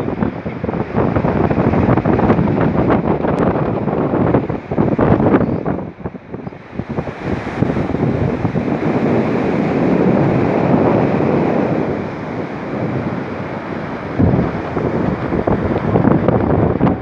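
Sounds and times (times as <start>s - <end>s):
wind buffeting microphone: 0.0s - 17.0s
fast-flowing water rushing: 5.8s - 17.0s.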